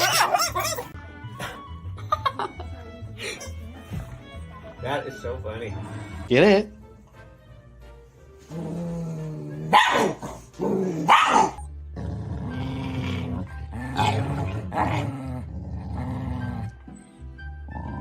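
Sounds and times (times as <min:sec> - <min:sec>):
dog crying: 0:00.0 - 0:01.0
dog growling: 0:08.5 - 0:17.0.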